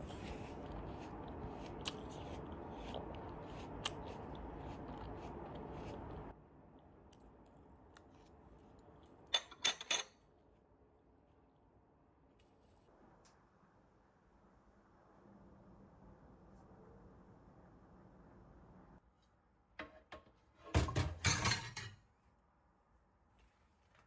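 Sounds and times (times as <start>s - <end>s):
steady background hum: 0.0s - 23.3s.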